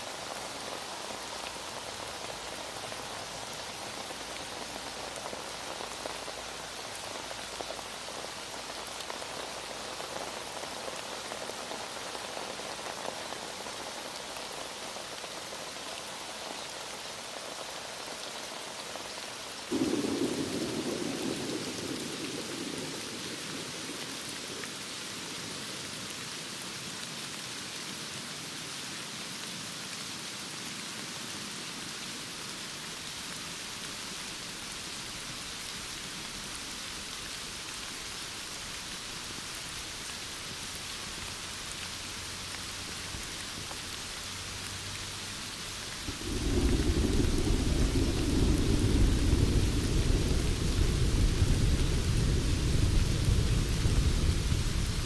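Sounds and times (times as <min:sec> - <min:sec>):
heavy rain falling: 0:00.0 - 0:55.0
thunder rumbling: 0:19.7 - 0:24.6, 0:45.9 - 0:55.0.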